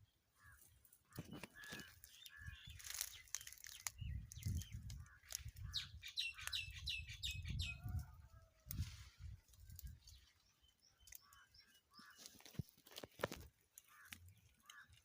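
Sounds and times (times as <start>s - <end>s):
bird chirping: 0.0s - 8.0s, 9.9s - 13.1s.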